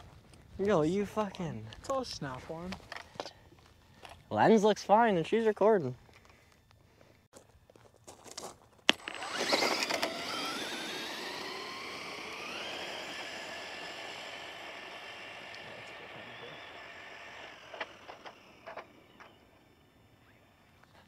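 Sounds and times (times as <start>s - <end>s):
electric motor whining: 8.9s - 20.9s.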